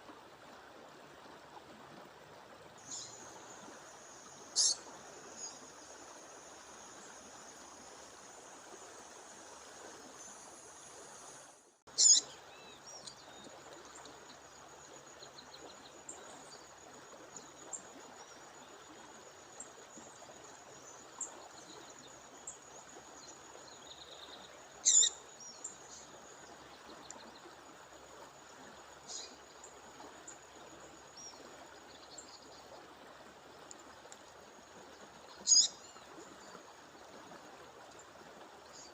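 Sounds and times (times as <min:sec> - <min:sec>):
bird giving sharp high calls: 0:04.6 - 0:04.8, 0:12.0 - 0:12.2, 0:24.8 - 0:25.1, 0:35.5 - 0:35.7.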